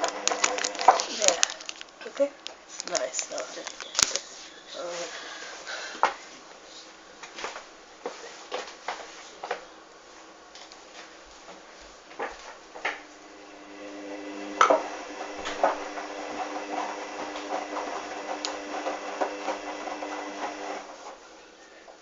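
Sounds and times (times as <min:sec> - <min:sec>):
washing machine motor humming: 0:00.0 - 0:04.9, 0:12.6 - 0:21.0.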